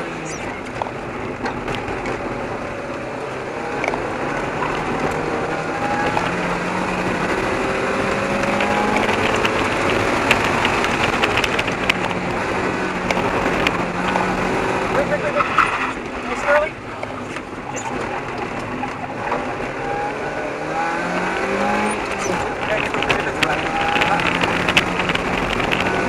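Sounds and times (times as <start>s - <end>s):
car engine revving hard: 0.0s - 16.7s, 17.5s - 26.0s
sharp ticks: 8.2s - 12.3s.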